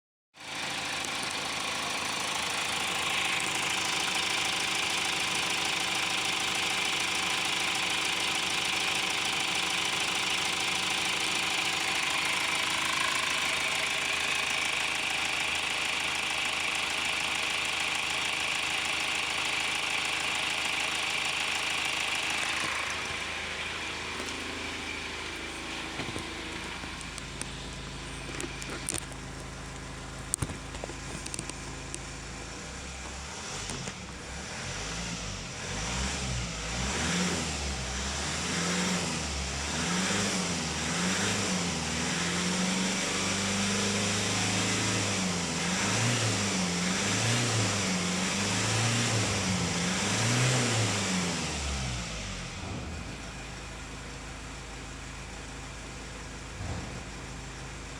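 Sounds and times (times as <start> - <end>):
diesel engine idling: 0.4 - 36.7, 51.2 - 57.9
clicks: 25.6 - 32.2.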